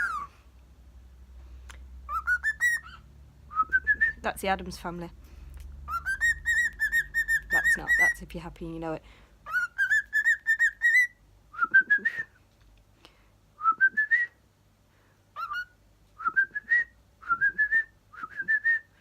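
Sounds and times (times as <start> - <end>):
cockatiel whistling a tune: 0.0 - 0.3, 2.1 - 4.2, 5.9 - 8.1, 9.5 - 12.3, 15.4 - 18.9.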